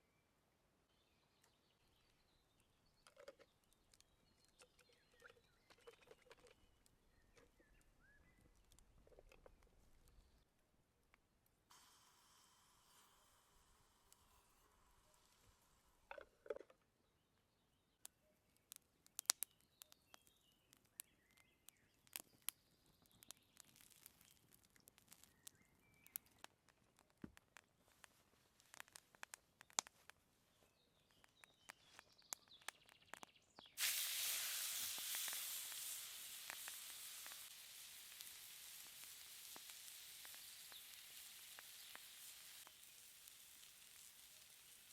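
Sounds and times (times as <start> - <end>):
faint bird chirps: 0.0 - 8.8, 19.3 - 26.5
food sizzling on hot stone: 11.7 - 16.0, 21.8 - 27.1, 31.2 - 44.9.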